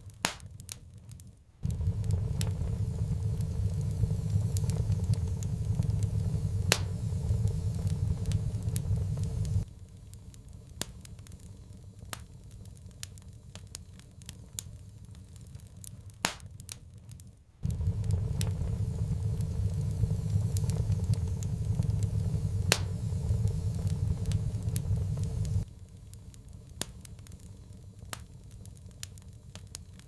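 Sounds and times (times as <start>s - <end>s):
wood fire crackling: 0.0s - 30.0s
low rumble: 1.6s - 9.7s, 17.6s - 25.7s.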